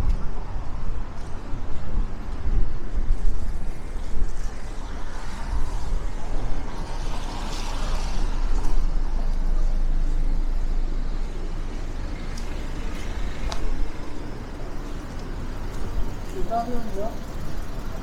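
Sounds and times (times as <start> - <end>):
city street traffic: 0.0 - 18.0
wind rumble on microphone: 0.0 - 18.0
vehicle passing: 3.1 - 18.0.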